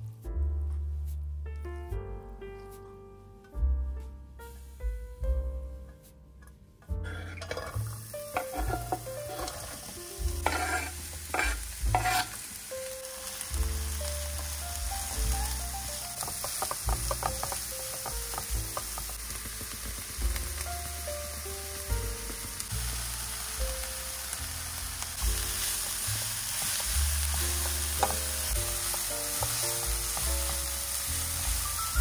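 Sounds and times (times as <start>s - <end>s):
onion sizzling in a frying pan: 7.0s - 32.0s
spatula scraping and stirring: 8.4s - 12.5s, 15.8s - 20.2s.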